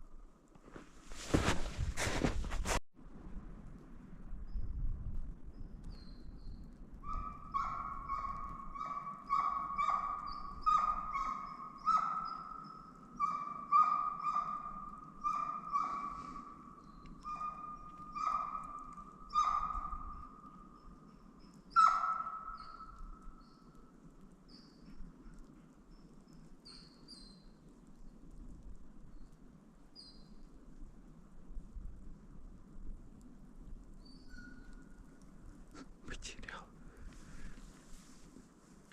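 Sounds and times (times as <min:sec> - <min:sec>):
hound baying: 0:07.0 - 0:20.6, 0:21.7 - 0:22.9.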